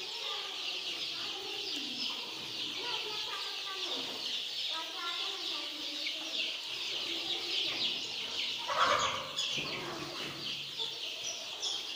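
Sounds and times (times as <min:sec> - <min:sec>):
baby chicks peeping: 0:00.0 - 0:11.9.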